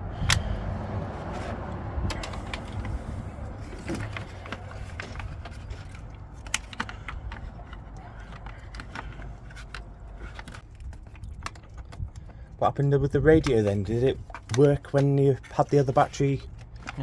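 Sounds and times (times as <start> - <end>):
hand tools clicking and tapping: 0.2 - 12.5.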